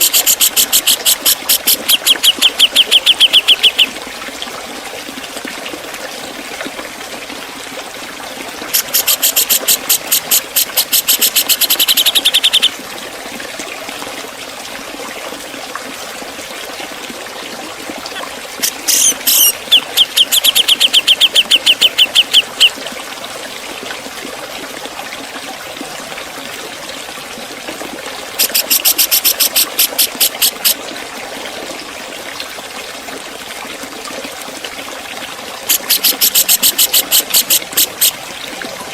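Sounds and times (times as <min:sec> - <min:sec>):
bulbul rapid sharp call notes: 0:00.0 - 0:03.9, 0:08.7 - 0:12.7, 0:18.6 - 0:22.7, 0:28.4 - 0:30.8, 0:35.7 - 0:38.2.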